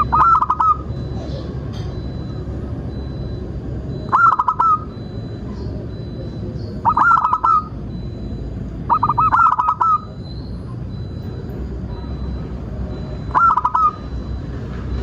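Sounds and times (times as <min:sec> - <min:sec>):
dove cooing: 0:00.0 - 0:03.3, 0:03.9 - 0:10.2, 0:12.0 - 0:14.3
low background rumble: 0:00.0 - 0:15.0.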